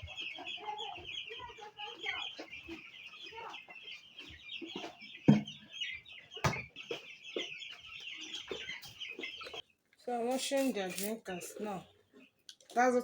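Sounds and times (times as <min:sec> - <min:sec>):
chicks cheeping: 0:00.0 - 0:13.0
sharp knocks: 0:05.3 - 0:05.6.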